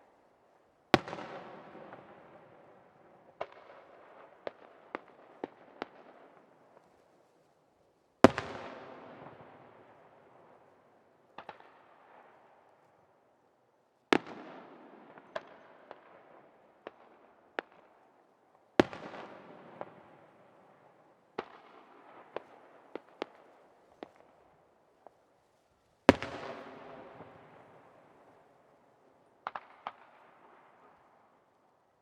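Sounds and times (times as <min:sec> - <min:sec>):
fireworks sharp cracks: 0:18.8 - 0:25.2, 0:26.1 - 0:28.5, 0:29.4 - 0:31.1
fireworks big bangs: 0:26.1 - 0:27.8.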